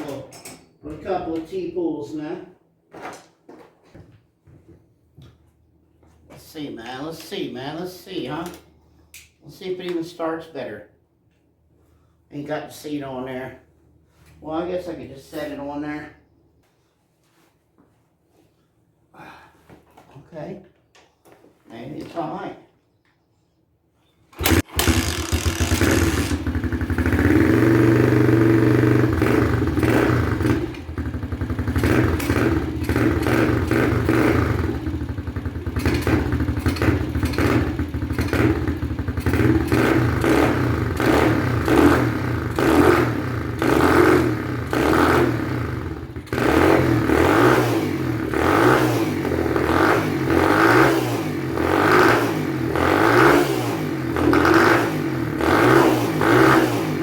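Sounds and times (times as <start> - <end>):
motorbike engine revving: 24.4 - 57.0.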